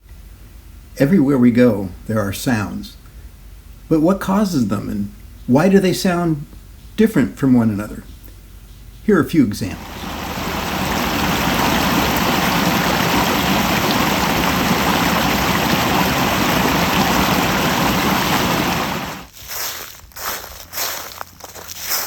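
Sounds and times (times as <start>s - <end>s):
steady rushing noise: 9.7s - 19.3s
crunching footsteps: 17.6s - 22.0s.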